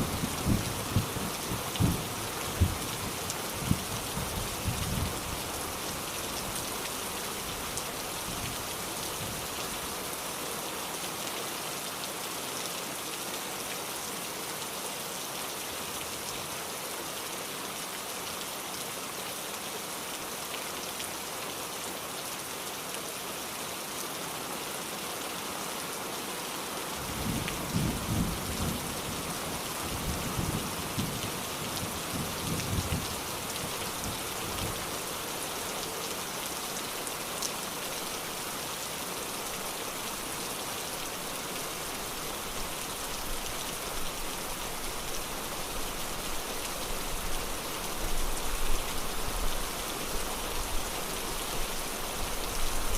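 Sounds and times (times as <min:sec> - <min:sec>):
heavy rain hissing: 0:00.0 - 0:10.1, 0:27.0 - 0:52.9.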